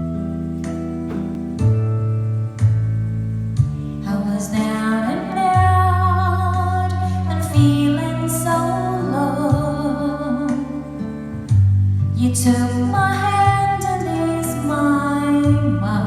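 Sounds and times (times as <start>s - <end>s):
keyboard and bass accompaniment: 0.0s - 16.0s
woman singing slow song: 4.0s - 11.5s, 12.2s - 16.0s.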